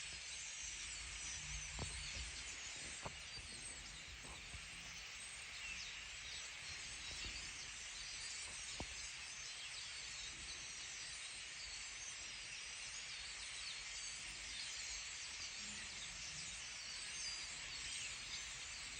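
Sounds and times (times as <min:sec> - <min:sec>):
small birds chirping: 0:00.0 - 0:11.8
steady high hiss: 0:00.0 - 0:18.9.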